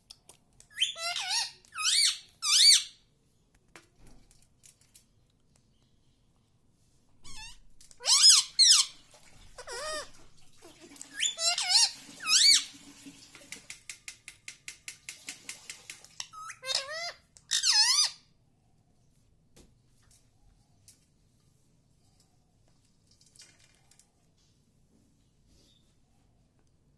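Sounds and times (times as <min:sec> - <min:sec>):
parakeet calling: 0:00.7 - 0:03.0, 0:07.2 - 0:09.0, 0:09.6 - 0:10.2, 0:11.2 - 0:12.7, 0:16.2 - 0:18.2.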